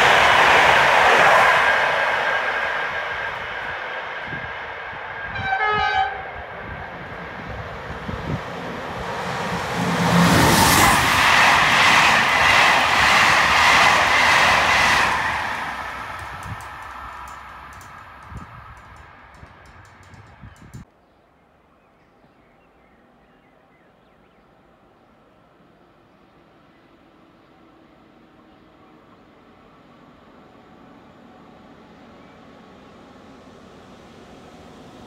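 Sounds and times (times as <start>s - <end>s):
train passing at speed: 0.0s - 20.9s, 24.5s - 35.0s
train horn blast: 5.3s - 6.8s
train wheels clattering: 10.1s - 20.8s.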